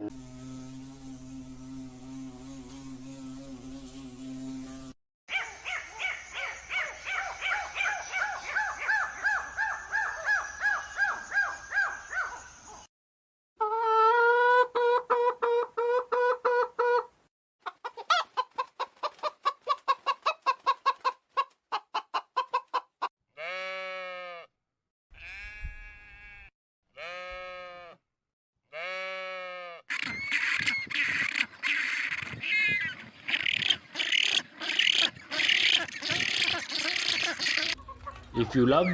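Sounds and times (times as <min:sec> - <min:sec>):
chickens clucking and calling: 0:13.6 - 0:23.1, 0:29.9 - 0:38.9.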